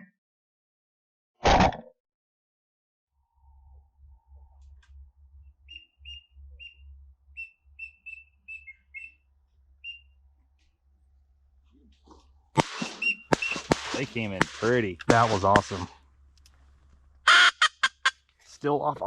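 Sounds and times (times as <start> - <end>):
high whistled duck peeps: 5.6 - 9.2, 9.8 - 10.2, 12.6 - 15.8, 17.3 - 18.1.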